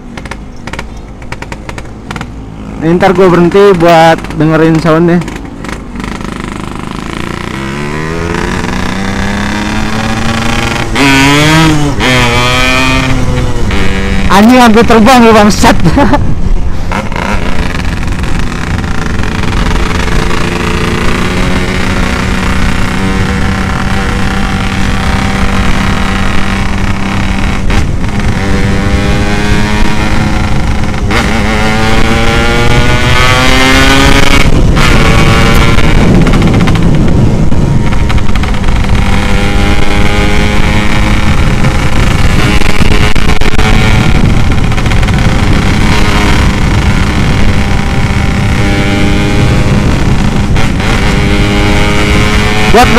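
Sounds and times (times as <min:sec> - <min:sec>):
two-stroke motorcycle accelerating: 0:00.0 - 0:52.9
wind and road noise: 0:00.0 - 0:52.9.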